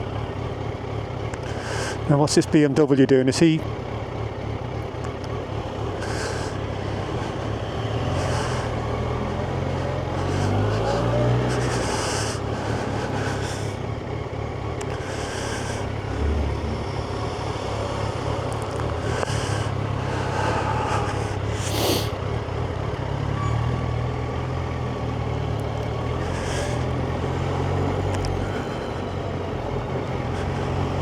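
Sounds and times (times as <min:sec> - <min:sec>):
motorcycle engine running: 0:00.0 - 0:23.1
high hiss: 0:21.7 - 0:22.1.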